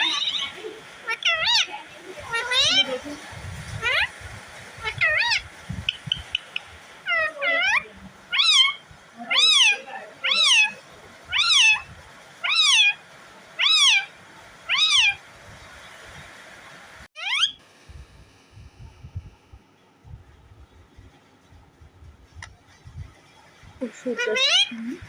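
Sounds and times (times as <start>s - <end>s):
parrot mimicking cat meow: 0.0s - 1.7s, 2.3s - 2.9s, 3.8s - 4.1s, 4.8s - 5.4s, 7.0s - 13.0s, 13.6s - 14.1s, 14.7s - 15.2s, 17.2s - 17.6s, 24.2s - 24.8s.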